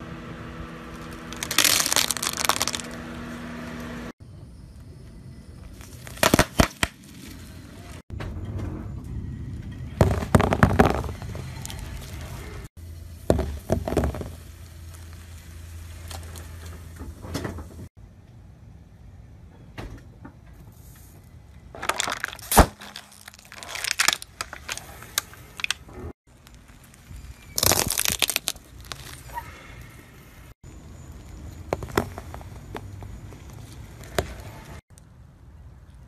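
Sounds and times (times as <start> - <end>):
balls crunching under tyre: 0.8 - 3.2, 5.6 - 8.0, 10.0 - 16.7, 21.7 - 29.4, 30.6 - 34.9
plastic bottle cracking: 1.0 - 3.0, 6.0 - 7.0, 10.0 - 11.8, 21.8 - 24.9, 27.6 - 29.2.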